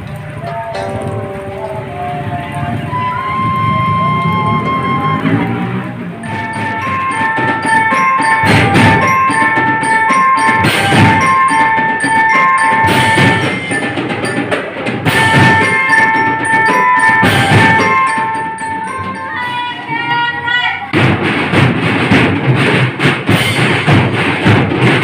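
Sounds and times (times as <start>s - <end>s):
drums: 0.0s - 25.0s
bell-lyre melody: 0.4s - 20.4s.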